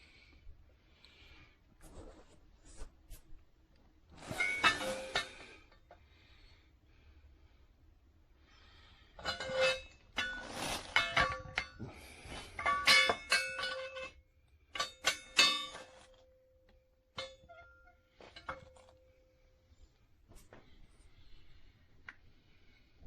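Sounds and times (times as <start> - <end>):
metal chain clinking and clanking: 4.2 - 5.5, 12.6 - 14.2.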